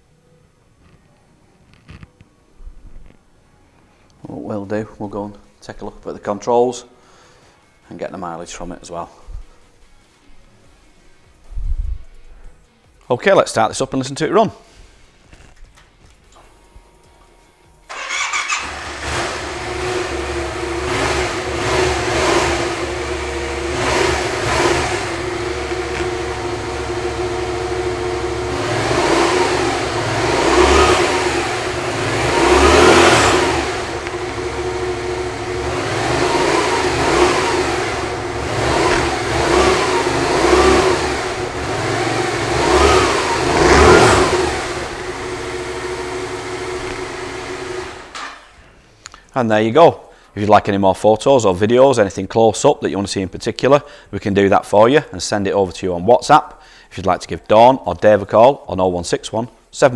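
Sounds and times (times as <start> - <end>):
engine throttle blips: 17.9 - 48.7
motorcycle engine starting and idling: 17.9 - 48.8.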